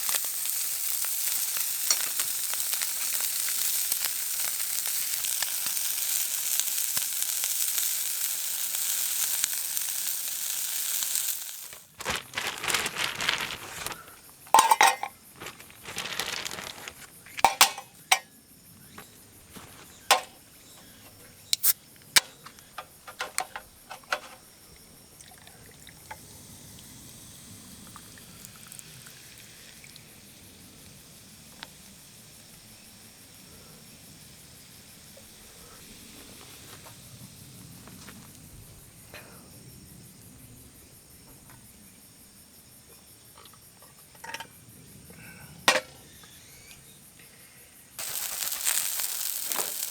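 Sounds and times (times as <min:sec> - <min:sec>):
food sizzling on griddle: 0:00.0 - 0:13.8, 0:14.5 - 0:18.0, 0:48.0 - 0:49.9
utensils clinking on metal: 0:14.5 - 0:18.2
faint insect buzzing: 0:46.0 - 0:49.9.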